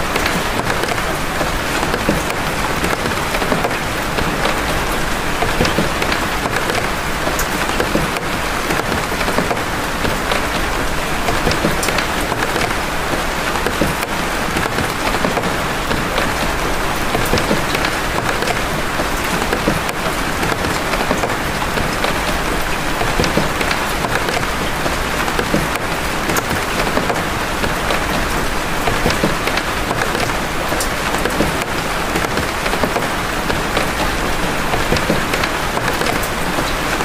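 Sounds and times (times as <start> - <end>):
raindrop ticks: 0.0 - 37.0
steady rain hiss: 0.0 - 37.0.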